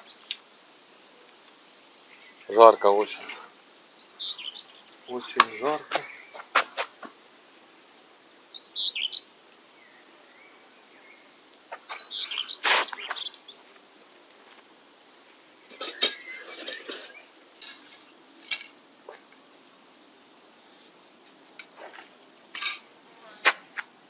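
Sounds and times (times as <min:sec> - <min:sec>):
bird chirps: 0:02.1 - 0:06.5, 0:08.5 - 0:11.3, 0:11.9 - 0:13.6, 0:15.6 - 0:18.2.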